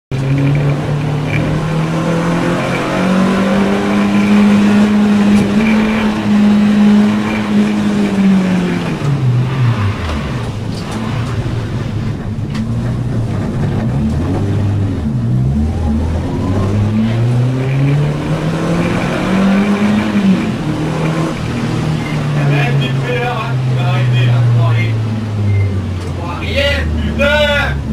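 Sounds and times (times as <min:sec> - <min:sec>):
race car engine revving: 0:00.1 - 0:27.9.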